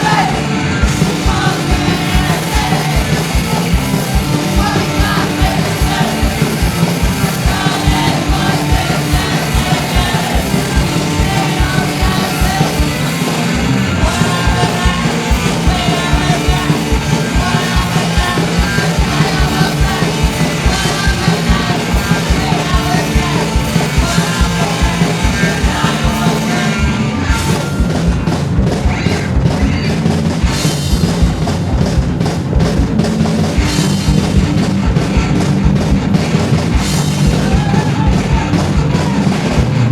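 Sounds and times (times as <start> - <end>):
person shouting singing: 0.0 - 13.4, 14.0 - 27.1, 37.3 - 39.6
fast drum beat: 0.0 - 39.9
punk rock band playing: 0.0 - 39.9.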